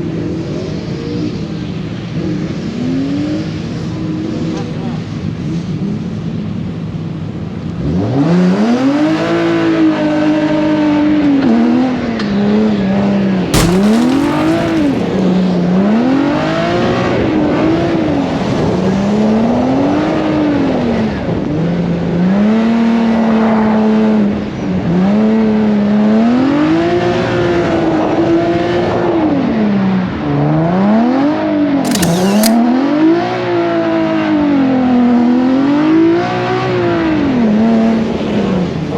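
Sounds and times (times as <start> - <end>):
short sharp noises: 13.6 - 15.4, 31.9 - 32.6.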